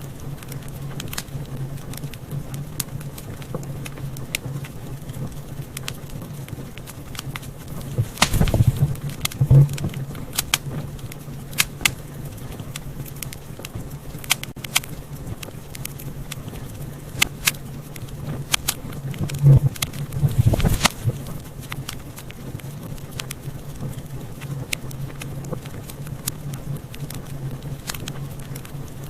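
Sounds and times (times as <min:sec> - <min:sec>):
wood fire crackling: 0:00.0 - 0:29.0
low hum: 0:07.6 - 0:13.2, 0:15.0 - 0:21.7.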